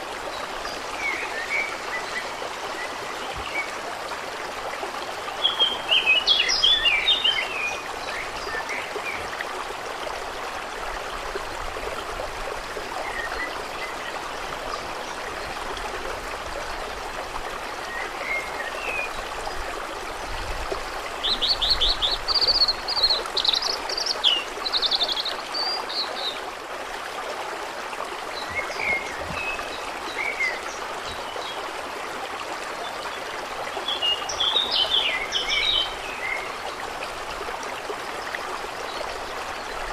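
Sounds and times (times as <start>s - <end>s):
water flowing and trickling: 0.0s - 39.9s
songbirds chirping: 28.1s - 31.8s.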